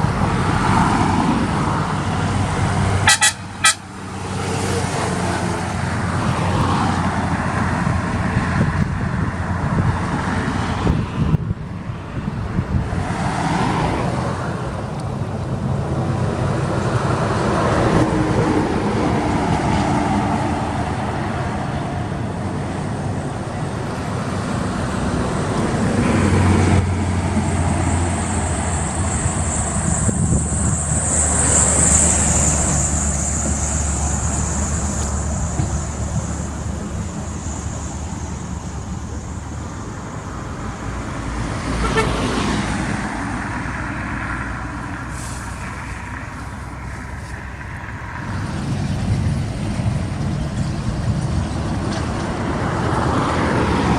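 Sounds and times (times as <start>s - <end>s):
road traffic: 0.0s - 53.9s
truck engines: 0.0s - 53.9s
high hiss: 43.4s - 47.8s.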